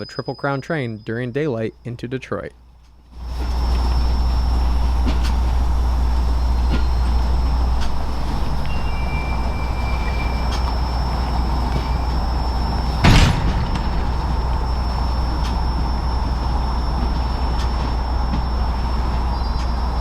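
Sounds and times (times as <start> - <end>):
train rumbling: 0.0 - 20.0
loud sharp knock: 13.0 - 15.0.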